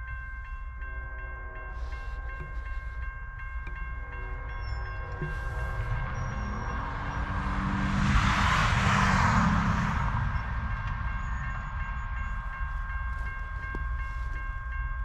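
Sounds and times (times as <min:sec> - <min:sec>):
crossing bells ringing: 0:00.0 - 0:15.0
distant freight train rumble: 0:00.0 - 0:15.0
road vehicle passing whoosh: 0:05.2 - 0:12.5.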